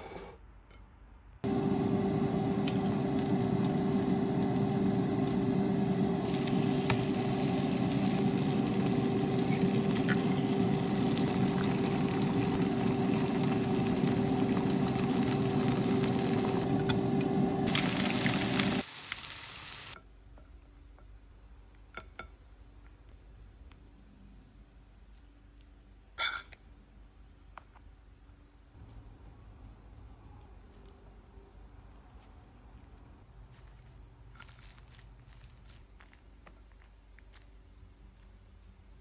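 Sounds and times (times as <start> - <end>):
constant hum: 1.4 - 20.0
egg sizzling in a pan: 1.4 - 20.0.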